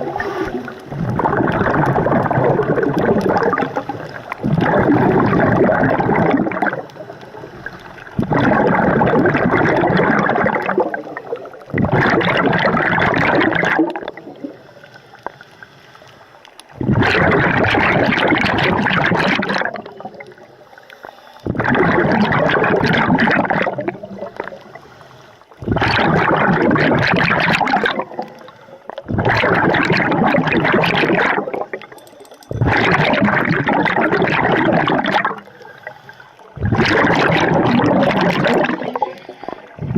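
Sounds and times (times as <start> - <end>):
diver exhaling bubbles: 0.0 - 14.6, 16.7 - 20.5, 21.4 - 24.8, 25.5 - 31.9, 32.5 - 39.9
regulator inhalations: 20.6 - 21.5, 35.4 - 36.6, 38.9 - 39.9.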